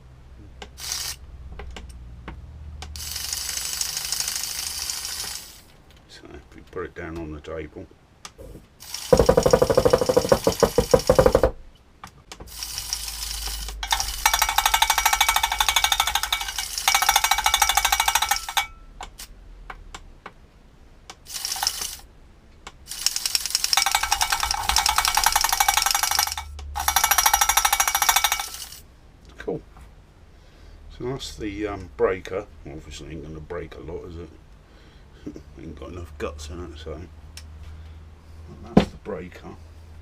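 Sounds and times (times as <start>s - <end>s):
breaker attachment hammering metallic: 13.8s - 18.8s, 23.8s - 28.8s.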